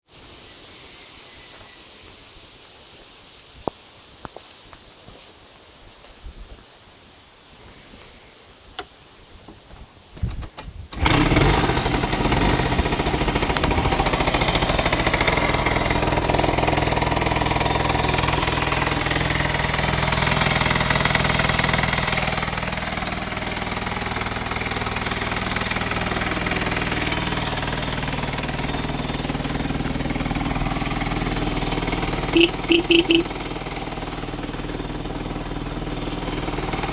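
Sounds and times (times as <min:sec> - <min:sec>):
scooter engine starting and running: 0:10.9 - 0:36.9.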